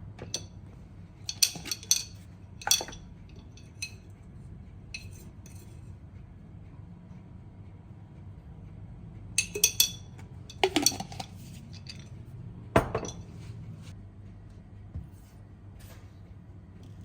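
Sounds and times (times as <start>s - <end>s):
low steady hum: 0.0s - 17.0s
dishes and utensils clinking: 1.3s - 4.0s, 5.0s - 5.8s, 9.4s - 12.2s, 12.8s - 13.4s.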